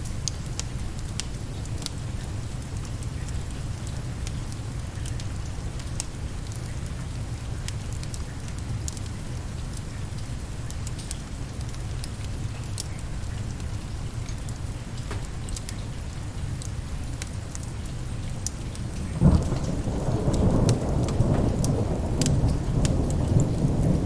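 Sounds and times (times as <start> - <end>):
steady rain: 0.0 - 24.0
wood fire crackling: 0.1 - 24.0
low even rumble: 18.7 - 24.0.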